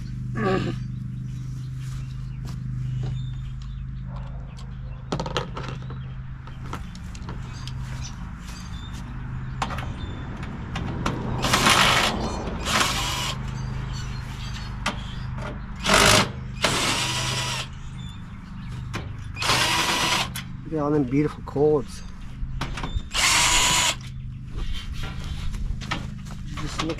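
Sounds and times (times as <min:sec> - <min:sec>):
steady low hum: 0:00.0 - 0:10.5
cordless drill running: 0:11.4 - 0:13.4, 0:15.8 - 0:17.7, 0:19.4 - 0:20.3, 0:23.1 - 0:24.1.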